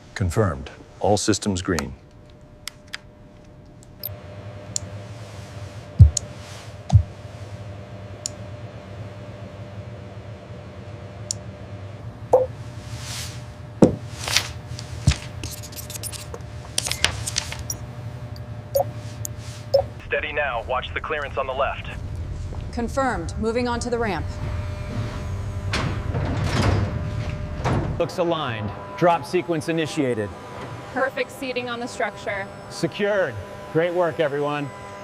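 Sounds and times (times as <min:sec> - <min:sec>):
steady low hum: 0:00.0 - 0:35.0
heavy thuds: 0:06.0 - 0:06.2, 0:06.9 - 0:07.2.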